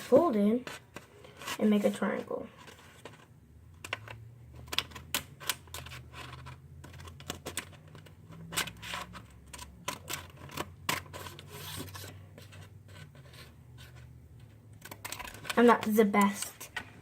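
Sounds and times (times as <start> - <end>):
paper crinkling and rustling: 0.0 - 17.0
scissors cutting paper: 4.7 - 12.2.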